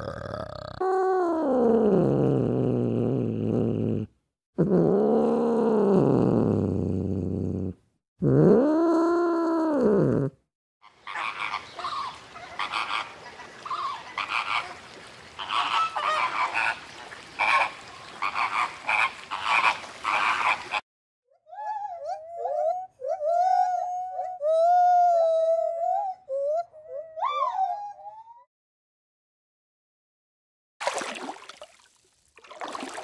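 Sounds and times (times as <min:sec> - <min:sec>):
flamingos honking: 0:10.9 - 0:20.8
gibbon calls: 0:11.0 - 0:14.8.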